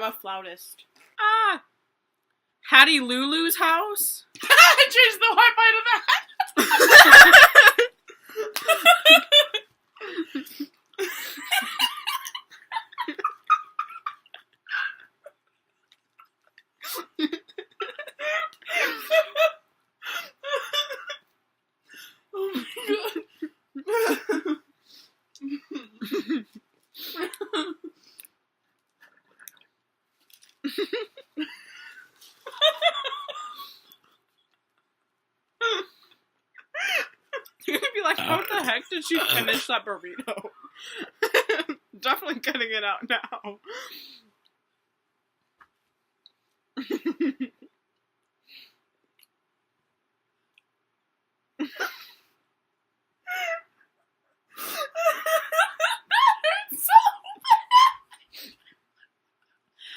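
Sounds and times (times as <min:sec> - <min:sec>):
person talking: 0:37.7 - 0:40.4, 0:56.2 - 0:57.6.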